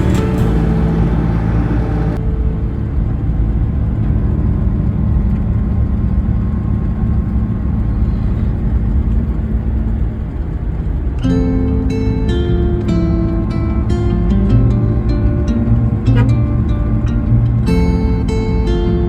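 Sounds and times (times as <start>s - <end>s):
guitar music: 0.0s - 6.4s, 11.2s - 19.0s
car engine and tyre rumble: 0.0s - 19.0s.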